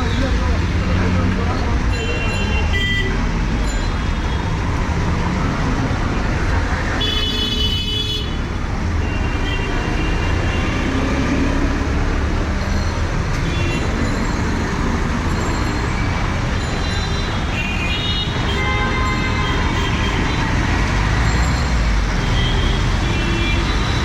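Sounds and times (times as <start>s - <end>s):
tyres on wet road: 0.0s - 18.5s, 19.1s - 24.0s
traffic engines: 0.0s - 24.0s
vehicle horn: 18.0s - 20.3s.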